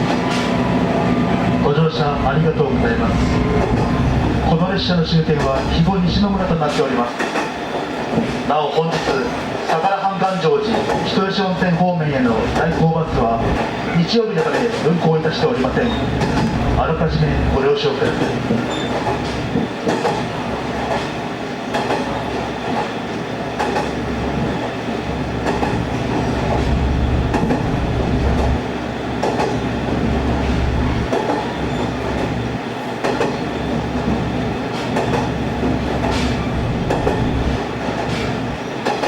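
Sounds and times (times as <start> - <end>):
railcar engine drone: 0.0 - 39.0
wheels clacking over rail joints: 18.0 - 24.7, 25.4 - 28.6, 29.2 - 32.4, 33.0 - 39.0.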